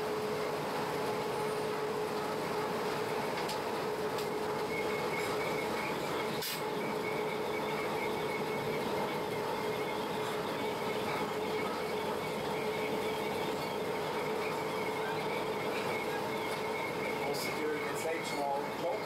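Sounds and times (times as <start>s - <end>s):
constant hum: 0.0s - 19.0s
faint high whine: 0.0s - 19.0s
train wheels rumbling on rail: 0.0s - 19.0s.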